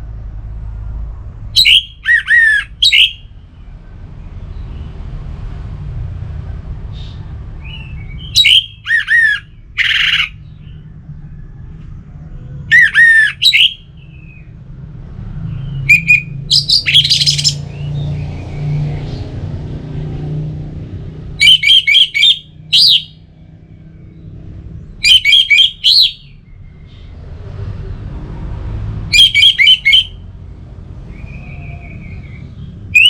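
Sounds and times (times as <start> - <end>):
low steady rumble: 0.0 - 20.0, 22.4 - 25.1.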